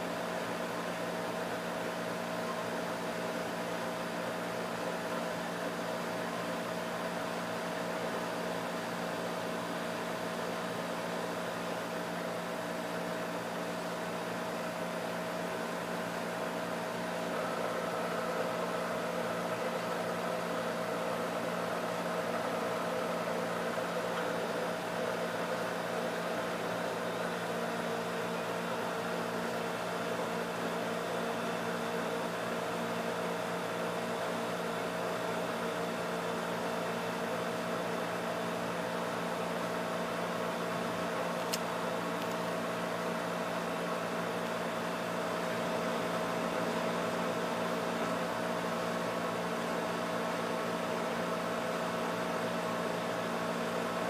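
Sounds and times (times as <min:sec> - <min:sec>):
air conditioner humming: 0:00.0 - 0:54.0.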